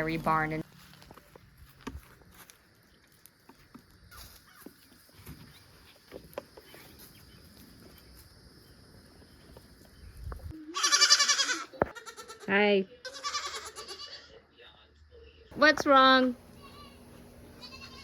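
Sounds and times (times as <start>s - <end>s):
young goat bleating: 10.5s - 14.4s, 16.5s - 17.0s, 17.6s - 18.0s.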